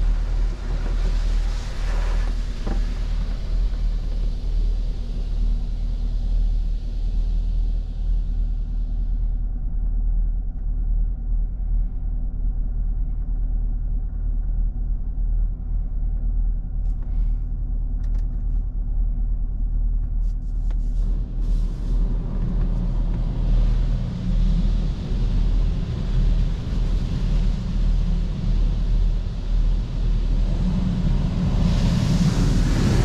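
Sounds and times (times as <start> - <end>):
car wash hiss: 0.0 - 8.2, 20.7 - 33.0.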